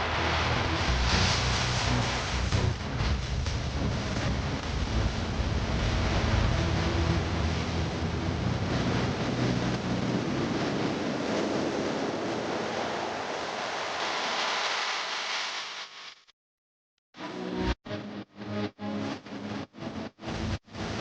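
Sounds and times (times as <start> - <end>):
wind buffeting microphone: 4.3 - 14.3.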